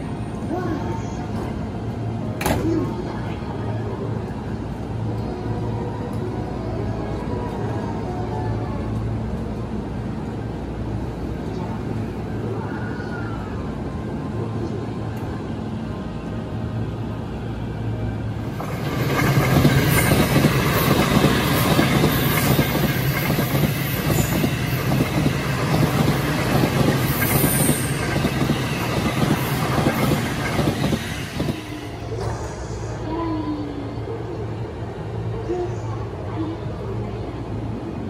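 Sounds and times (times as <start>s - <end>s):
train wheels rumbling on rails: 18.2s - 33.9s.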